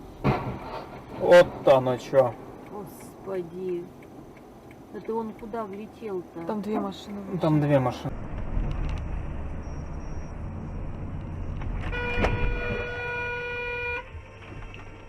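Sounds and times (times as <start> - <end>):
car engine and road rumble: 0.0 - 15.0
car horn: 11.6 - 14.5.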